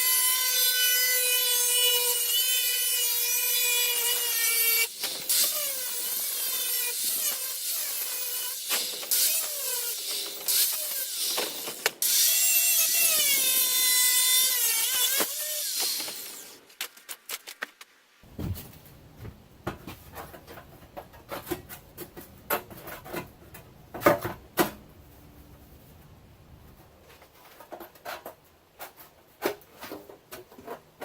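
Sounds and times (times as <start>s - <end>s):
power tool cutting metal: 0.0s - 16.6s.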